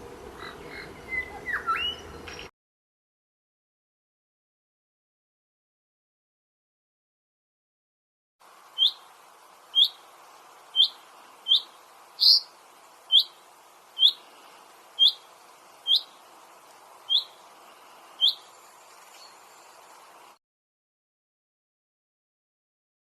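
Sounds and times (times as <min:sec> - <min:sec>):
songbird chirping: 0:00.3 - 0:02.5, 0:08.5 - 0:20.4
faint hiss: 0:08.4 - 0:20.4.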